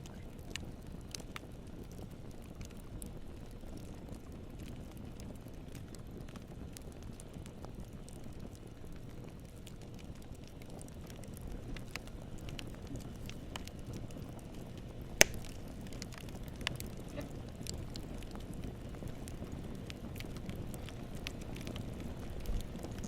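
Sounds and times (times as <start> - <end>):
campfire flames rumbling: 0.0 - 23.0
fire crackling: 0.0 - 23.0
loud sharp fire pop: 15.2 - 15.6.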